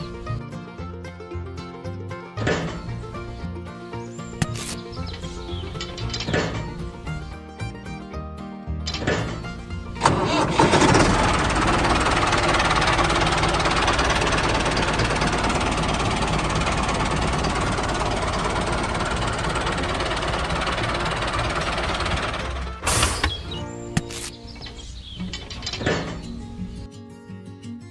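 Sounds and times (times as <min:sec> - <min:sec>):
tractor engine chugging: 0:04.4 - 0:07.3, 0:08.9 - 0:23.7, 0:24.6 - 0:26.8.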